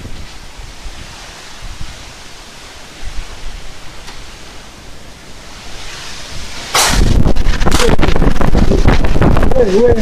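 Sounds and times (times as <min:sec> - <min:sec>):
wind buffeting microphone: 0:00.0 - 0:02.2, 0:05.7 - 0:10.0
heavy rain hissing: 0:00.0 - 0:10.0.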